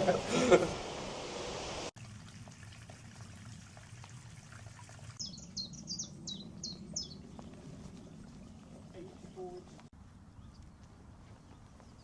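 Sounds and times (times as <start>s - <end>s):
small bird chirping: 5.2s - 8.2s.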